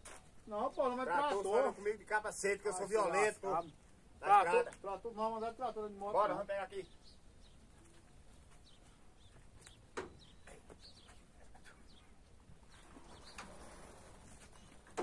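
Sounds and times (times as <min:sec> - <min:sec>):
soft bird chirps: 0:06.7 - 0:15.0.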